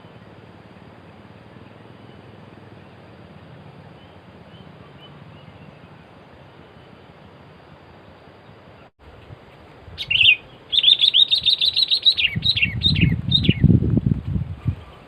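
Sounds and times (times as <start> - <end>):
bird calling: 0.9 - 7.3, 10.0 - 13.7
rapid sharp bird chirps: 10.0 - 13.7.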